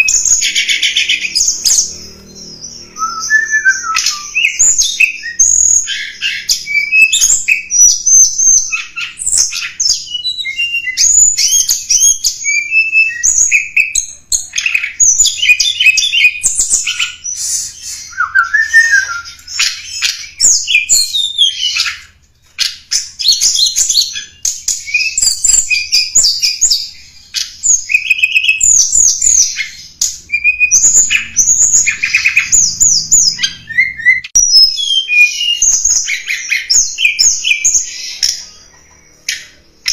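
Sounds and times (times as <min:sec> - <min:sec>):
songbird chirps trills and whistles: 0:00.0 - 0:39.9.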